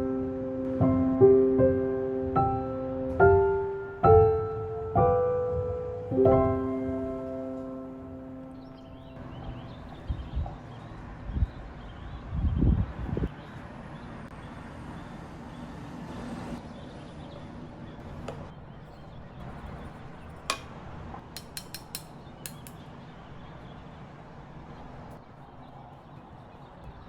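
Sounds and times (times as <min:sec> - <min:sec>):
sharp clink: 0:21.4 - 0:22.8.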